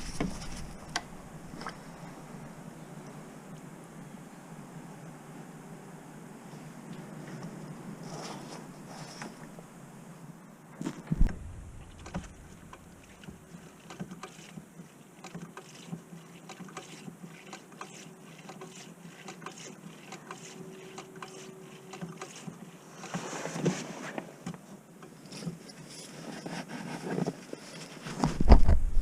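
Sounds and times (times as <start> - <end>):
steady low hum: 0.0 - 15.0
heavy thump: 10.8 - 13.4.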